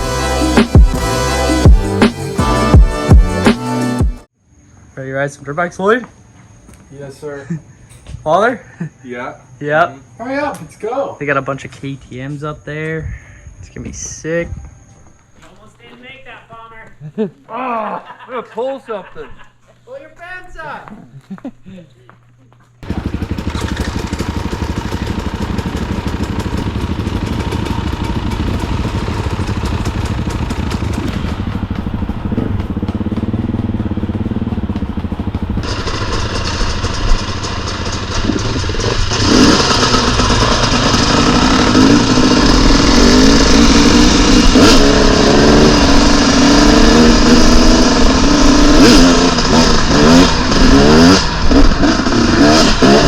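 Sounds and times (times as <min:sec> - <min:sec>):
dirt bike engines revving: 0:22.8 - 0:53.0.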